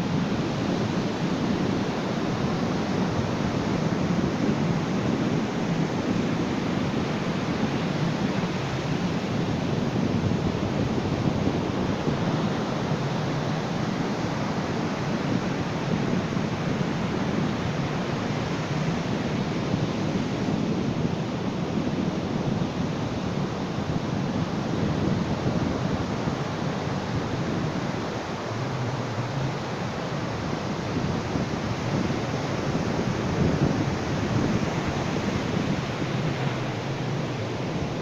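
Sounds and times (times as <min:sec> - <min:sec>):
ocean surf washing on beach: 0:00.0 - 0:38.0.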